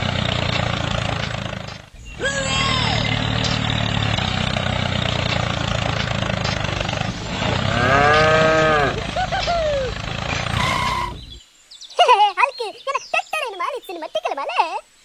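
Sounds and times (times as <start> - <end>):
tractor engine running: 0.0 - 11.4
cow mooing: 2.2 - 11.4.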